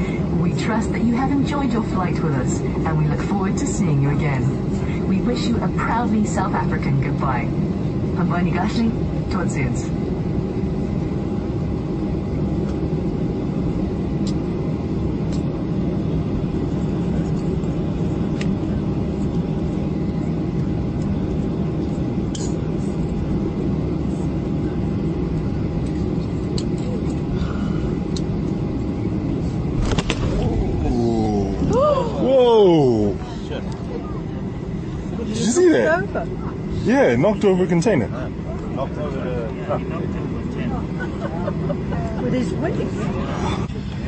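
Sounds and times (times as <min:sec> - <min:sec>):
airliner engines rumbling: 0:00.0 - 0:44.0
thin steady whine: 0:20.2 - 0:44.0.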